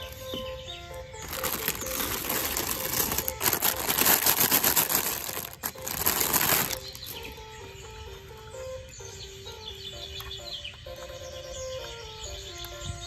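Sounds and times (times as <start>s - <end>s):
simple background tune: 0.0s - 13.0s
loud rapid rattling: 1.3s - 7.1s.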